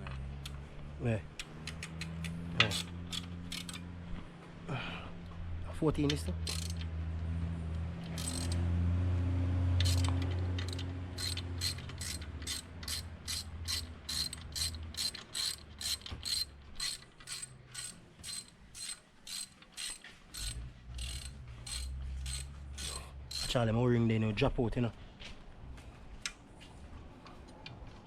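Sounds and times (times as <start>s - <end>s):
hand ratchet clicking: 1.4s - 3.8s, 6.2s - 6.9s, 8.0s - 8.6s, 9.8s - 23.6s.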